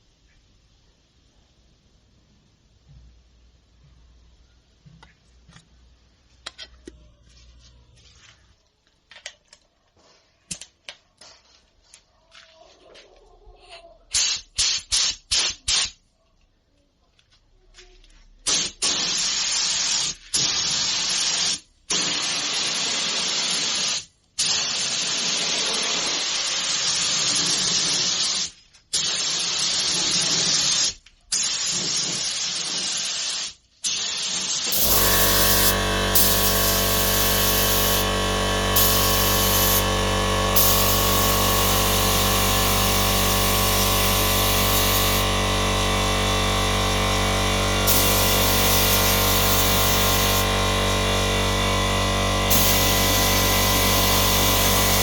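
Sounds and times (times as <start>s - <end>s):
spray glue hissing: 14.1s - 16.0s, 18.4s - 55.0s
steady even hum: 34.8s - 55.0s.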